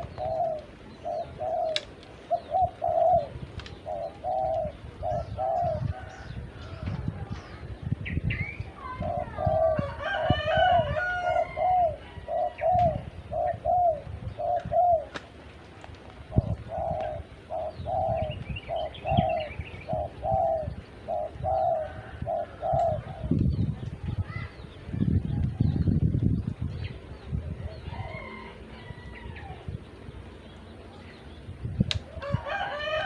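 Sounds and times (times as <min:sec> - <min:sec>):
dove cooing: 0:00.0 - 0:07.7, 0:08.8 - 0:15.3, 0:16.2 - 0:23.6
small birds chirping: 0:00.0 - 0:33.0.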